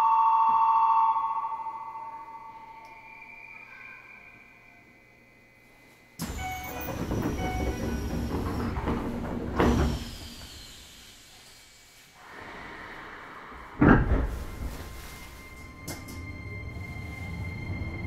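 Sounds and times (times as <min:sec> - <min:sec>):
train air hiss and rattle: 0:06.2 - 0:16.2
thump: 0:13.8 - 0:14.5.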